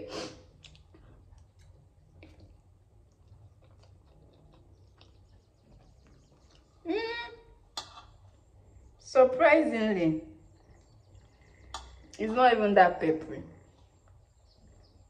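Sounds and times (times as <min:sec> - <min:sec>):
low steady background hum: 0:00.0 - 0:15.0
person chewing noodles: 0:00.4 - 0:06.8.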